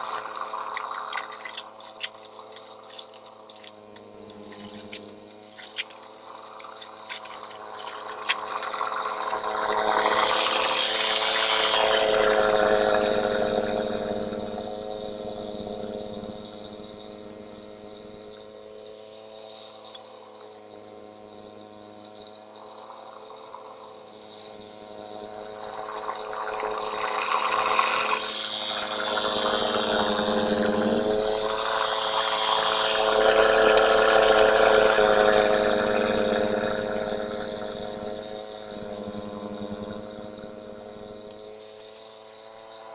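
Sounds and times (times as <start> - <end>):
snowblower engine running: 0.0 - 17.2, 24.7 - 41.6.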